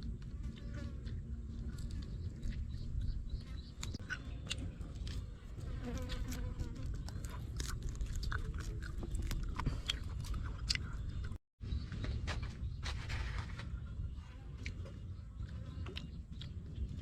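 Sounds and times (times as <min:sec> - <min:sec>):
person chewing crunchy food: 0:00.0 - 0:11.4.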